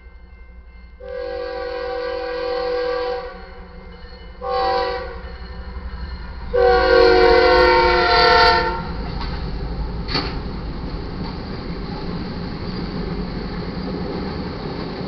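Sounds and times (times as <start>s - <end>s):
passing train rumble: 0.0s - 15.0s
locomotive air horn: 1.0s - 3.6s, 4.4s - 5.2s, 6.5s - 9.0s.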